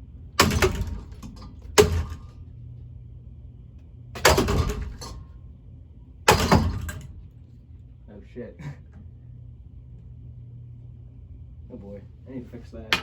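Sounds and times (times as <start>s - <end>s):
fan motor humming: 0.0s - 7.4s
fan blades struck clattering: 0.4s - 2.4s, 4.2s - 5.3s, 6.3s - 7.3s, 12.7s - 13.0s.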